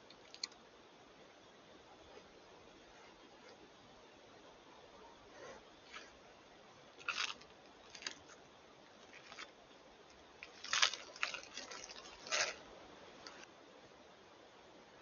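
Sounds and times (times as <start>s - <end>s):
faint microphone hiss: 0.0s - 15.0s
crunching and snapping: 7.0s - 12.6s.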